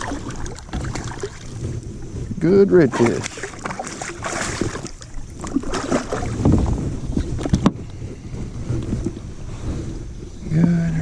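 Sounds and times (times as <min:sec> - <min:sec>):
water splashing: 0:00.0 - 0:07.6.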